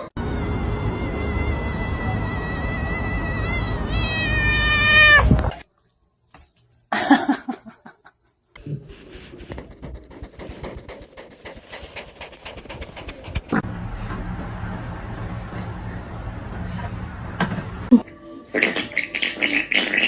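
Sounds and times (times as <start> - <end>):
cat yowling and meowing: 0.4 - 5.6.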